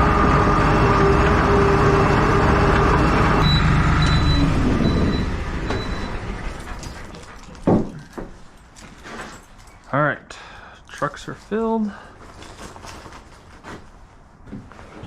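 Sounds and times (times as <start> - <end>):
truck engine running: 0.0 - 7.7
faint high beeps: 3.4 - 6.2.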